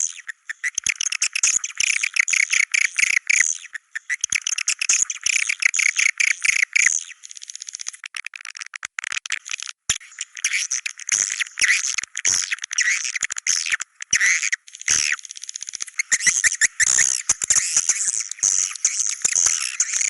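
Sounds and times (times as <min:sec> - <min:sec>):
chorus of swiftlets chirping: 0:14.7 - 0:20.0.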